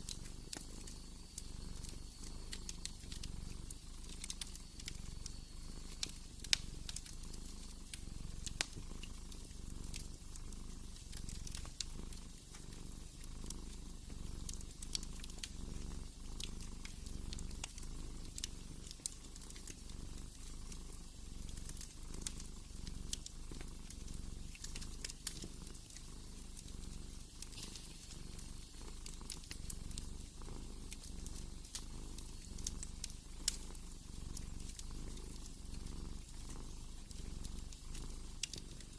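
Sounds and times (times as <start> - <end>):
cat purring: 0.0 - 38.9
wood fire crackling and popping: 0.0 - 38.9.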